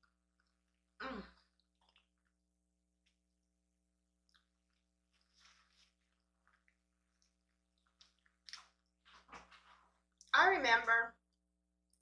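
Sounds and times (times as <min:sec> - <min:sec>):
mouth chewing sounds: 0:00.0 - 0:02.4, 0:04.2 - 0:09.3.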